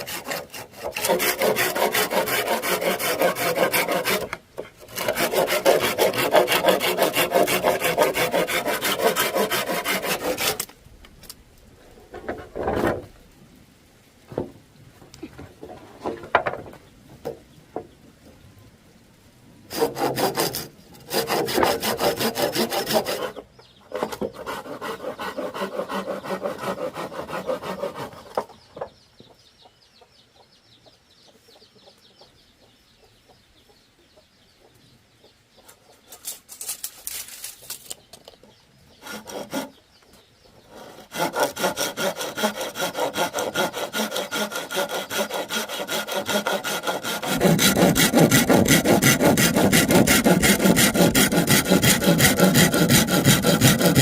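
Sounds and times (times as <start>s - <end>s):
hand saw cutting bamboo: 0.0s - 10.7s, 19.7s - 23.4s, 24.0s - 28.4s, 39.0s - 39.8s, 40.7s - 54.0s.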